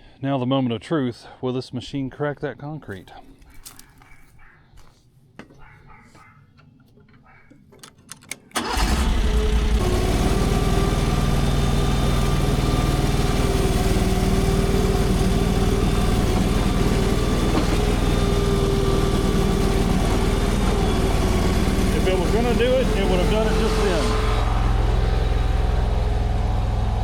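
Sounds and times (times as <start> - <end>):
skid steer engine running: 8.6 - 27.0.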